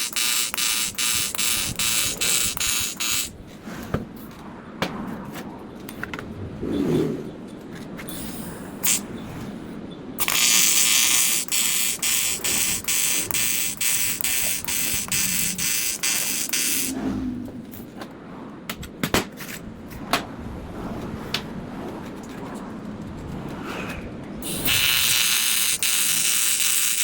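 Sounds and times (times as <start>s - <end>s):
sharp clicks: 0.0s - 3.3s, 10.2s - 17.0s
welding arc buzzing hiss: 0.0s - 3.4s, 8.8s - 9.1s, 10.2s - 17.0s, 24.4s - 27.0s.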